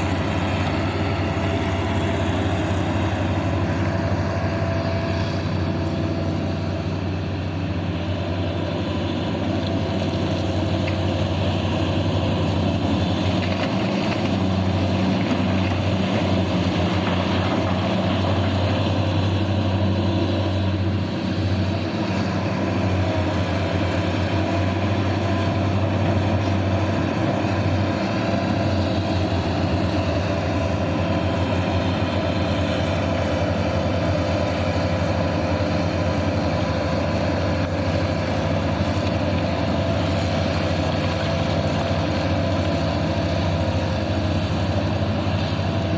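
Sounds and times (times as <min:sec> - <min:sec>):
heavy machinery engine humming: 0:00.0 - 0:45.9.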